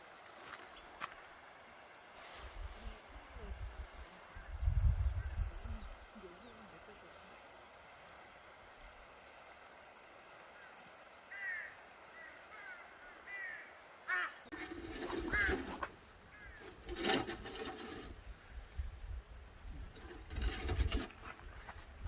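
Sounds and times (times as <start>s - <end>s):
rustling noise: 2.2s - 3.0s, 14.5s - 18.4s, 19.8s - 22.0s
birds calling: 4.3s - 21.3s.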